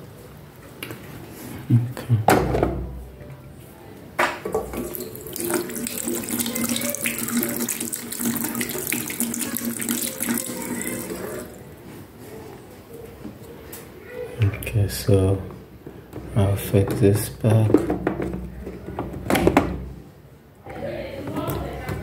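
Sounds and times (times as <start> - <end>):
water running from tap: 4.6 - 11.6.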